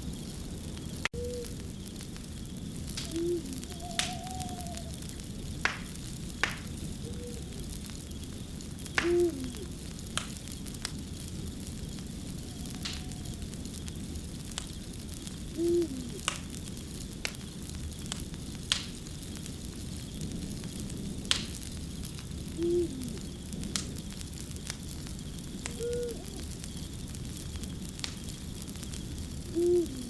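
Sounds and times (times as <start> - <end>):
fire crackling and popping: 0.0 - 30.0
low call with falling tail: 3.0 - 5.1, 8.9 - 9.7.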